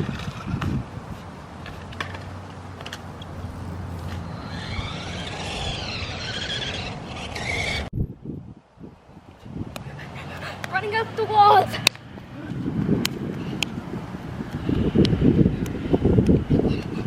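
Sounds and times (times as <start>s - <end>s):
electric rc truck whining: 0.0s - 7.9s
steady low hum: 0.0s - 8.2s.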